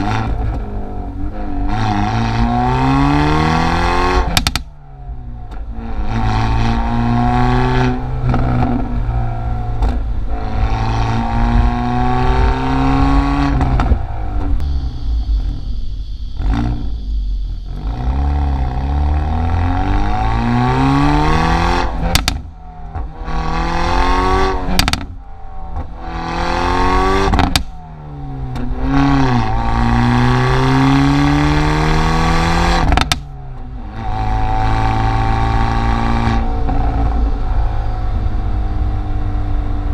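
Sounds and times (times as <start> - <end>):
car engine accelerating hard: 0.0 - 39.9
exhaust cracks and pops: 4.3 - 4.7, 22.0 - 23.0, 24.7 - 25.9, 27.3 - 27.8, 32.8 - 33.7.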